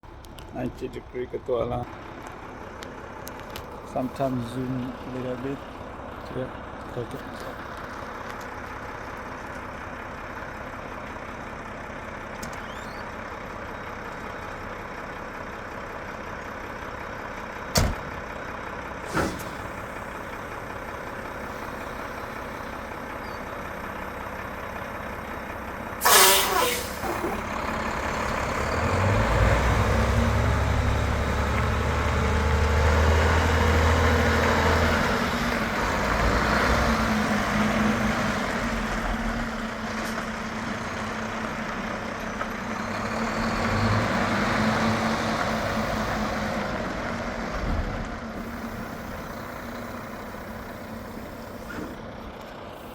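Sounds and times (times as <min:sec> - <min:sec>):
truck engine idling: 0:00.0 - 0:52.9
air brakes hissing: 0:19.0 - 0:20.0, 0:26.0 - 0:27.5, 0:48.4 - 0:52.0.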